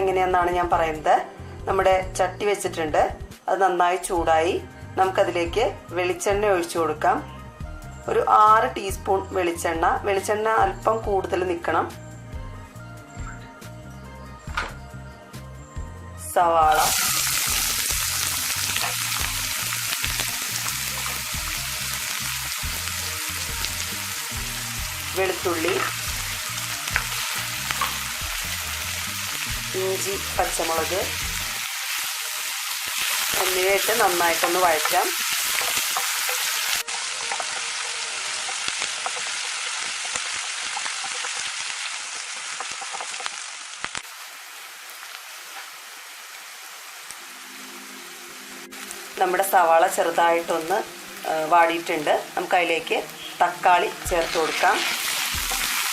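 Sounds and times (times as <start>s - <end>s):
onion sizzling in a pan: 16.5s - 55.9s.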